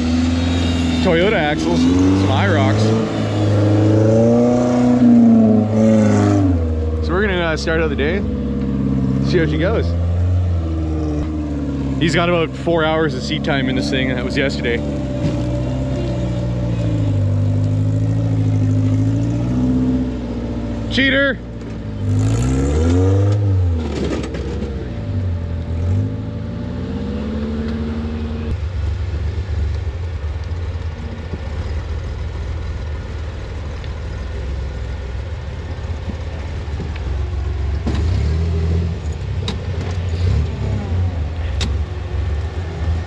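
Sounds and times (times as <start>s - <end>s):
off-road vehicle engine revving: 0.0s - 43.0s.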